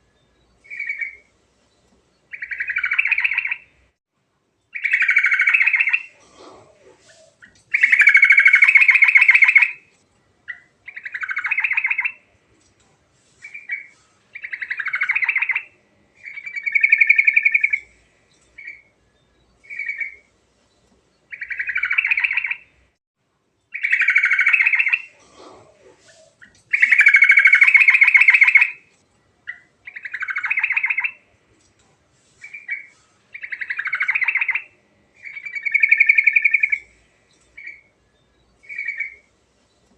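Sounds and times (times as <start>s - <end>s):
bulbul singing: 26.1s - 28.8s, 32.4s - 39.3s.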